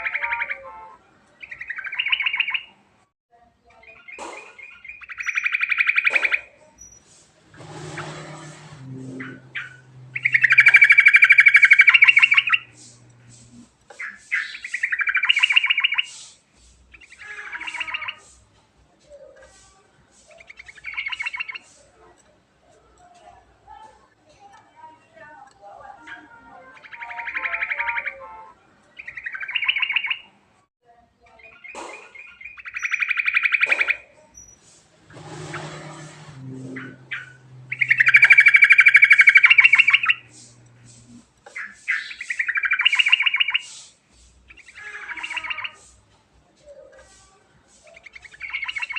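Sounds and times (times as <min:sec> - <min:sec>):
bird singing rattling trills: 0:01.4 - 0:02.7, 0:03.8 - 0:16.3, 0:16.9 - 0:18.4, 0:20.3 - 0:21.8, 0:26.0 - 0:28.2, 0:29.0 - 0:30.3, 0:31.4 - 0:43.9, 0:44.5 - 0:46.0, 0:47.9 - 0:48.9.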